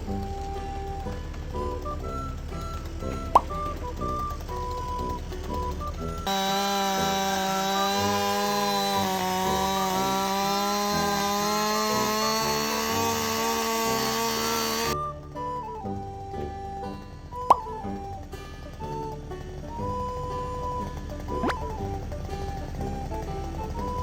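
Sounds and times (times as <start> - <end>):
chainsaw cutting log: 0.1 - 15.0, 21.0 - 24.0.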